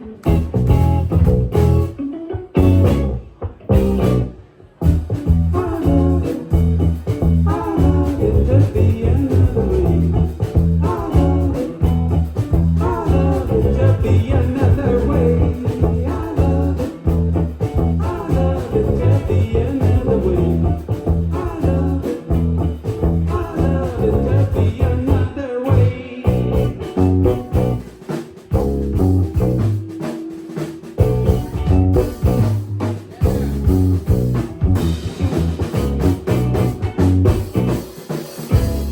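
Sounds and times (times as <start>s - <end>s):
bass guitar: 0.0s - 38.9s
drums: 0.0s - 38.9s
electric guitar: 0.0s - 38.9s.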